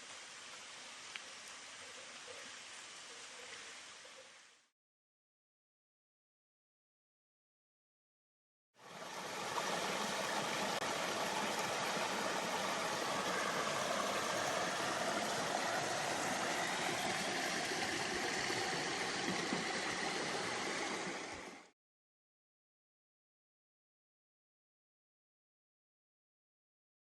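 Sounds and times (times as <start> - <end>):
rushing water: 0.0 - 4.7, 8.8 - 21.8.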